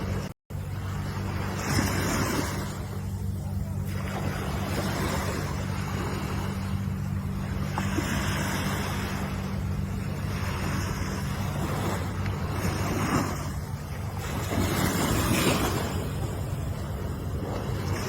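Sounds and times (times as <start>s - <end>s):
ocean waves breaking: 0.0s - 18.0s
steady low hum: 0.0s - 18.0s.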